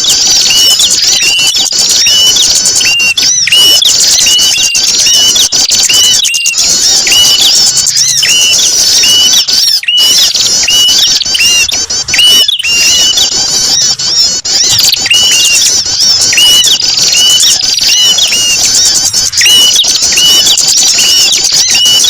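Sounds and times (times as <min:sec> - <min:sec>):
rising bird call: 0:00.0 - 0:22.0
small birds chirping: 0:00.0 - 0:22.0.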